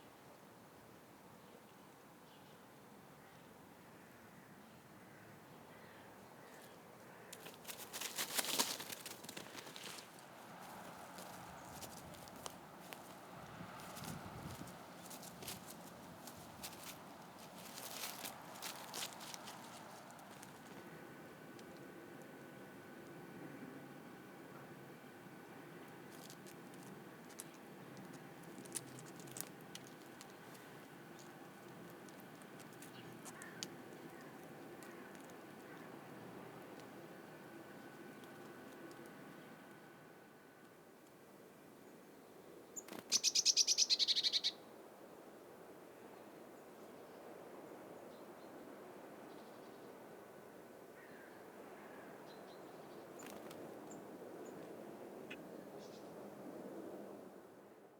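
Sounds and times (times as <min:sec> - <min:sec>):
dry crackling and scratching: 0:07.3 - 0:20.9, 0:26.1 - 0:35.8
light clicks and taps: 0:26.2 - 0:35.9
faint bird chirps: 0:41.8 - 0:44.6.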